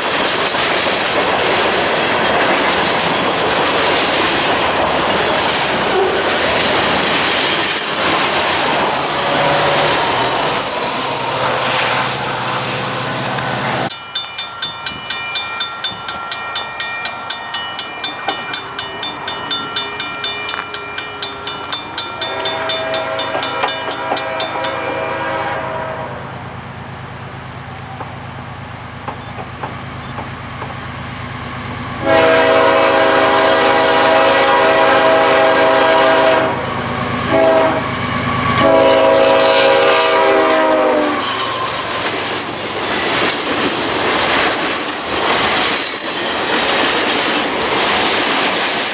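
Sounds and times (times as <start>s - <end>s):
crossing bell ringing: 0.0s - 48.9s
train rumbling past: 0.0s - 48.9s
locomotive horn blasts: 8.7s - 13.9s, 22.2s - 26.4s, 32.0s - 41.7s.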